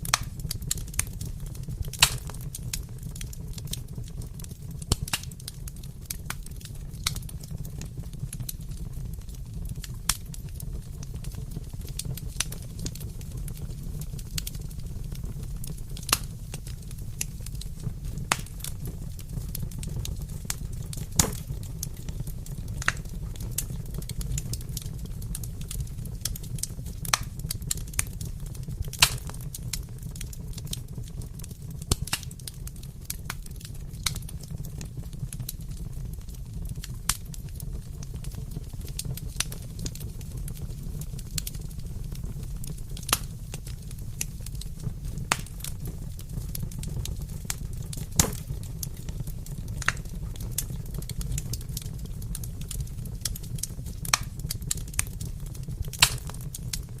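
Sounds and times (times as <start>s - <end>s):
fire crackling and popping: 0.0s - 57.0s
wood fire rumbling: 0.0s - 57.0s.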